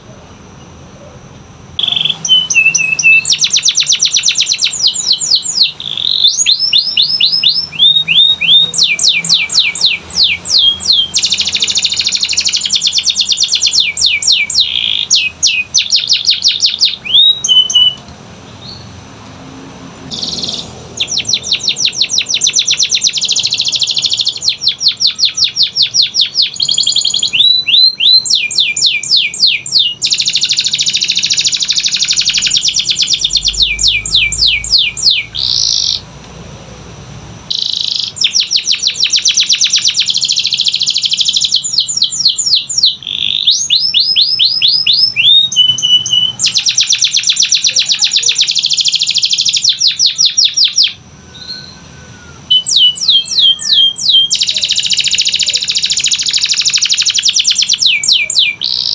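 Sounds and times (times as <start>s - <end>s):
canary singing trills: 0.0s - 19.1s, 20.0s - 36.1s, 37.4s - 58.9s.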